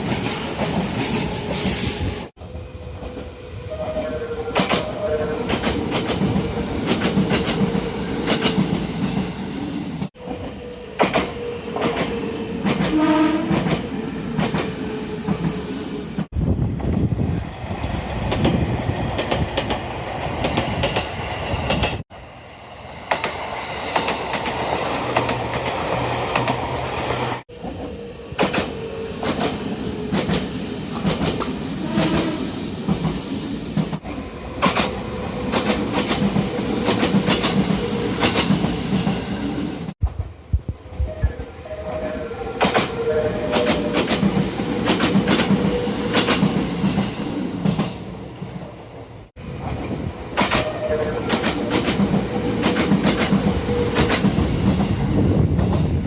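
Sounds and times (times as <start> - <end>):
wheels clacking over rail joints: 33.8 - 39.2, 49.6 - 54.9.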